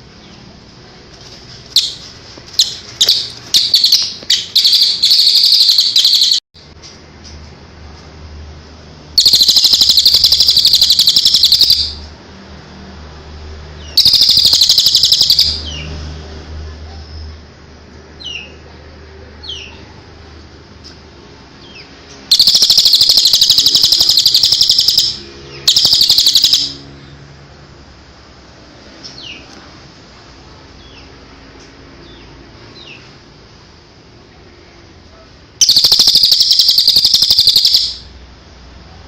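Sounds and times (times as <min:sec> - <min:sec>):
single bird chirps: 0:01.8 - 0:06.4, 0:22.3 - 0:26.9, 0:35.6 - 0:38.1.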